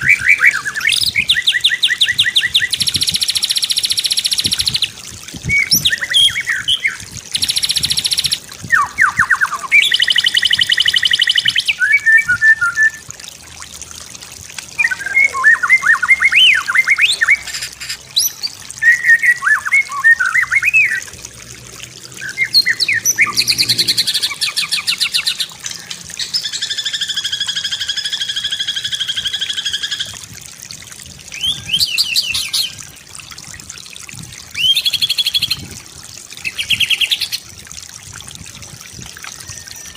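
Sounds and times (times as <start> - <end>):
bird singing varied song: 0.0 - 13.0, 14.8 - 21.1, 22.2 - 30.2, 31.3 - 32.8, 34.6 - 35.6.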